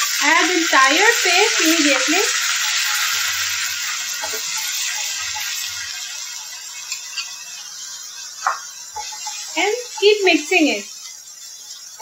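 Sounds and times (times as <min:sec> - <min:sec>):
onion paste sizzling in oil: 0:00.0 - 0:12.0
spoon stirring and scraping: 0:08.4 - 0:10.2.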